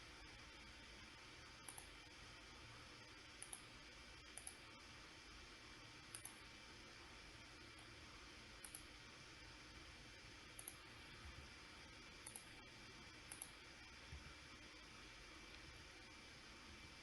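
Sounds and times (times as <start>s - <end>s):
faint steady hiss: 0.0s - 17.0s
computer mouse double-clicks: 1.6s - 1.9s, 3.4s - 3.7s, 4.3s - 4.6s, 6.1s - 6.4s, 8.6s - 8.9s, 10.5s - 10.8s, 12.2s - 12.6s, 13.3s - 13.6s.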